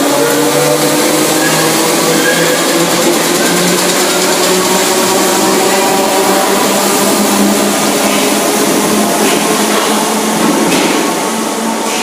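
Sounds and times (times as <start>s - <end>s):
electric train motors humming: 0.0s - 12.0s.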